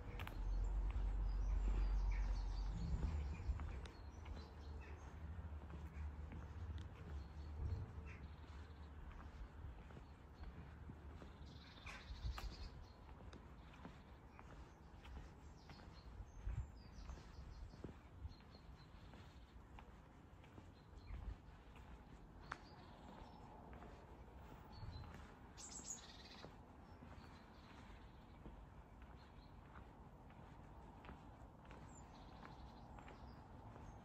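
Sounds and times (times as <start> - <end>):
soft low thumps: 0.0 - 4.8
birds chirping: 0.0 - 34.0.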